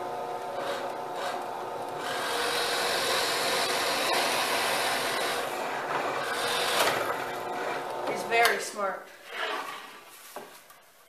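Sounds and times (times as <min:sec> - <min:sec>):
power drill boring into wood: 0:00.5 - 0:08.1.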